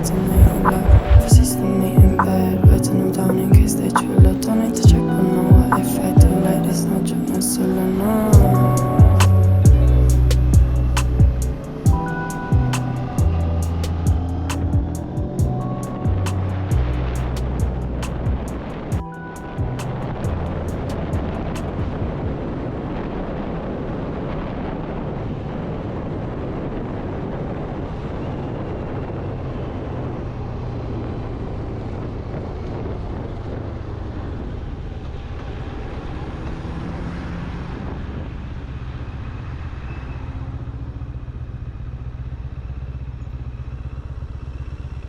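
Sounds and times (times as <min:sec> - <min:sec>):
wind and road noise: 0:00.0 - 0:45.0
motorcycle engine running: 0:08.3 - 0:22.1, 0:30.6 - 0:45.0.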